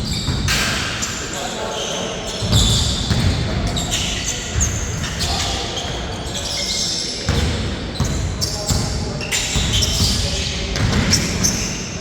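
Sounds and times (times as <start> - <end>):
sneakers squeaking on floor: 0.0 - 12.0
basketball bouncing on hard court: 2.5 - 3.7, 9.5 - 11.4.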